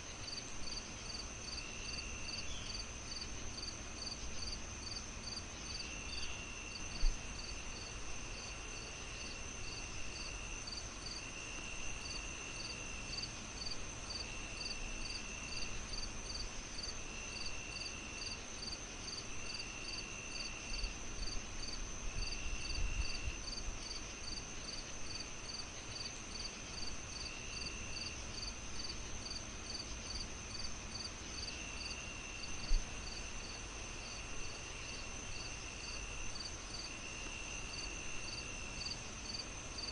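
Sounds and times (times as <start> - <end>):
insect steady high ring: 0.0 - 39.9
insect fast even chirp: 0.1 - 39.9.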